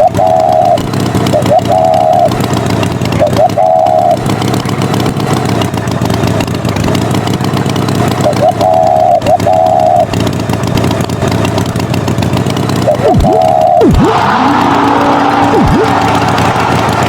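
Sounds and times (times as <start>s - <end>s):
swooping pitch sweeps: 0.0s - 4.4s, 8.2s - 10.1s, 12.8s - 17.0s
high held tone: 0.0s - 5.2s, 8.1s - 10.3s, 12.7s - 17.0s
engine running: 0.0s - 17.0s.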